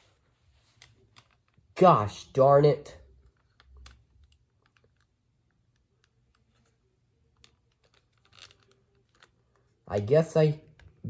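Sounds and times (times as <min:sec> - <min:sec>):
plastic toy parts clicking: 0:00.8 - 0:01.6, 0:03.1 - 0:11.0.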